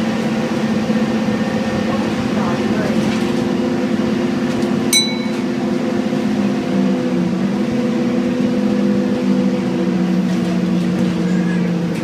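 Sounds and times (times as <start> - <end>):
bus engine running: 0.0 - 12.0
short ringing ding: 4.9 - 5.5.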